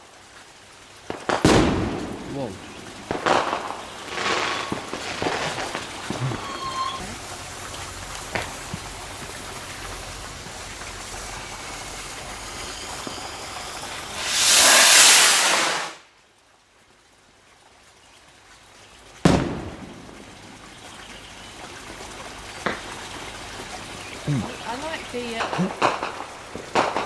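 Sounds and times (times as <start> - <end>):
firework bang: 1.1 - 6.5, 14.1 - 16.0, 19.2 - 20.3, 25.8 - 27.0
firework rocket launch hiss: 3.1 - 6.2, 11.0 - 16.1.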